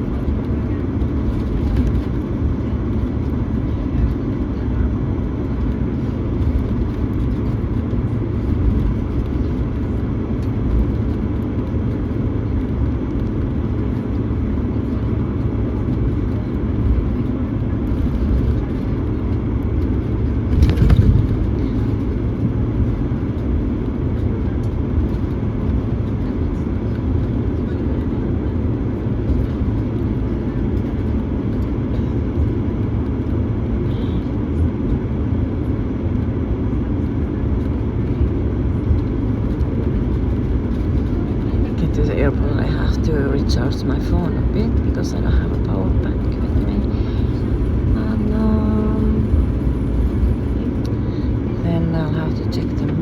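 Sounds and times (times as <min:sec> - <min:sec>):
faint steady whine: 0:00.0 - 0:53.0
low engine rumble: 0:00.0 - 0:53.0.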